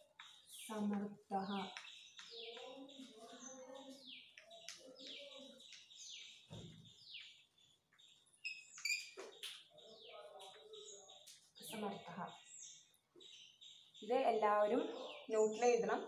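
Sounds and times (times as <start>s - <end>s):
bird chirping: 0.0s - 16.0s
soft murmured voices: 2.3s - 5.9s, 9.7s - 12.4s.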